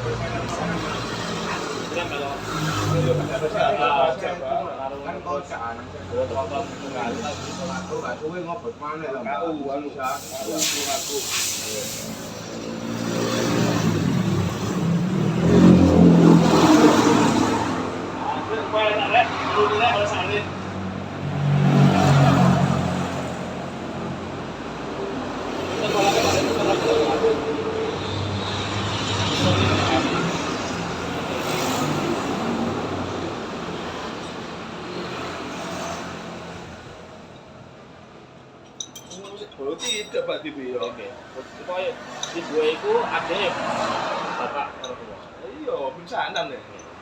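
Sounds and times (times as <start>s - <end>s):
road vehicle passing: 0.0s - 4.2s, 10.1s - 37.9s, 41.2s - 44.8s
vehicle engine accelerating: 12.1s - 18.2s.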